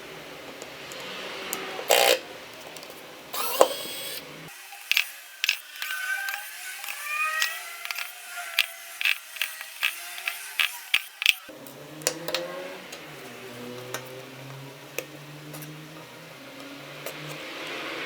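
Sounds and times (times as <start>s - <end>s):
clicks of tools and plastic parts: 4.8s - 13.1s.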